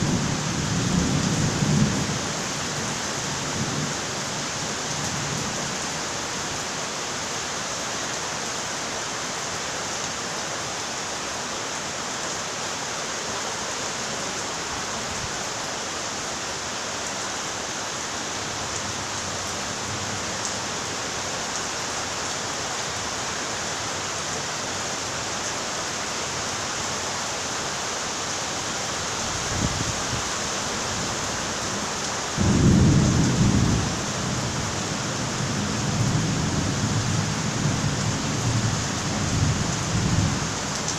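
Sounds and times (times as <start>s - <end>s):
steady rain falling: 0.0s - 40.9s
thunder rumbling: 32.4s - 34.6s.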